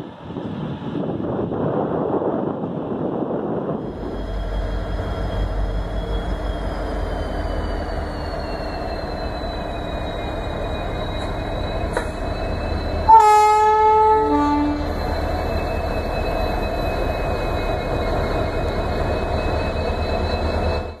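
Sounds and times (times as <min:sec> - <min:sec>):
train wheels rumbling on rails: 0:00.0 - 0:21.0
locomotive horn blast: 0:13.1 - 0:14.9.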